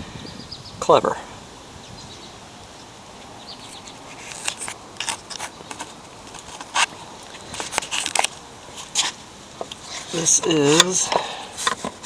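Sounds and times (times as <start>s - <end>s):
outdoor hiss: 0.0s - 12.0s
plastic and metal parts clicking: 7.6s - 8.4s, 10.6s - 12.0s.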